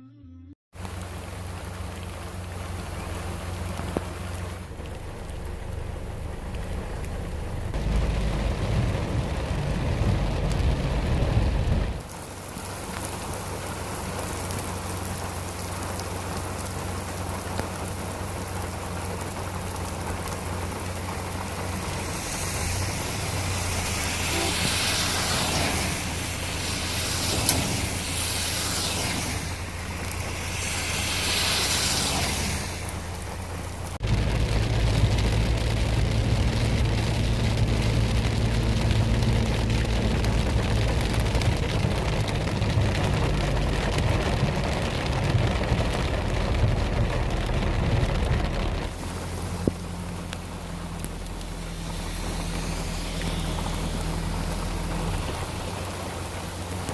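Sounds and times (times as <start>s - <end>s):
steady rain falling: 0.8s - 56.9s
wind rumble on microphone: 6.4s - 12.1s, 19.2s - 56.9s.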